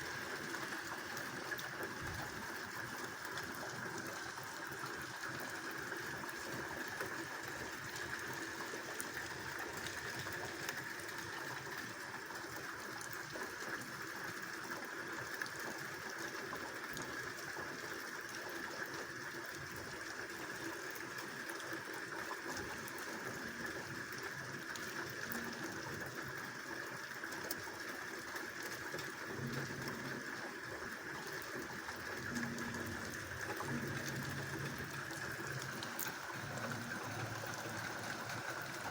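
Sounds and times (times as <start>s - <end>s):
rushing rain runoff water: 0.0s - 38.9s.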